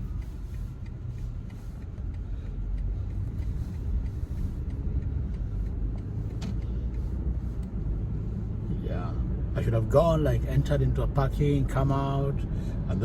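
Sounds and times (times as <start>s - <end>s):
click inside car: 0.0s - 8.4s
car engine and road noise: 0.0s - 13.0s.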